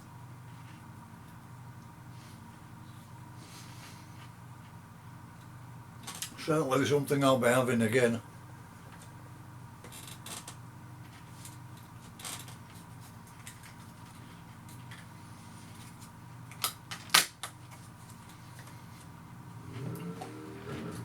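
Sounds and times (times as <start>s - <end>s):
low hum: 17.8s - 21.0s.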